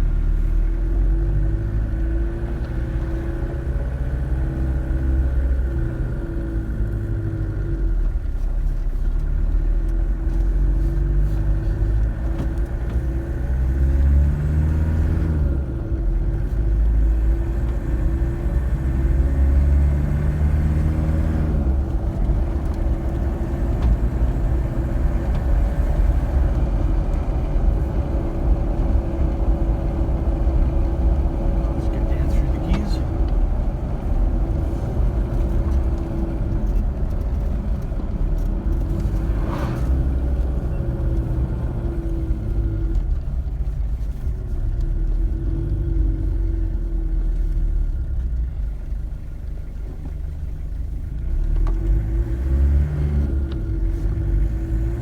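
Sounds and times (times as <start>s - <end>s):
truck engine accelerating: 9.2s - 55.0s
drivetrain hum: 20.0s - 51.2s.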